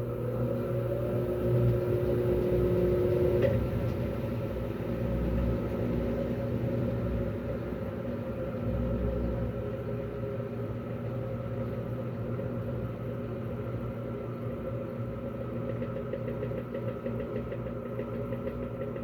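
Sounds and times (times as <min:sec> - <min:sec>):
washing machine spin cycle hum: 0:00.0 - 0:19.0.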